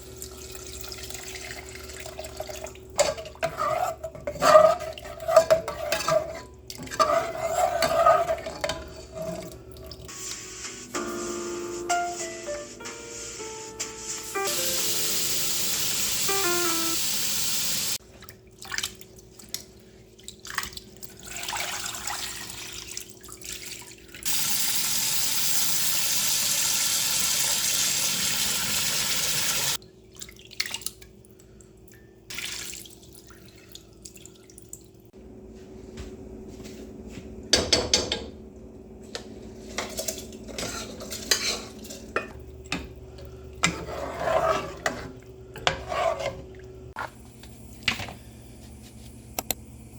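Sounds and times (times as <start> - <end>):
kitchen tap running: 14.1 - 18.0, 20.2 - 29.8
dishes and utensils clinking: 39.8 - 42.9.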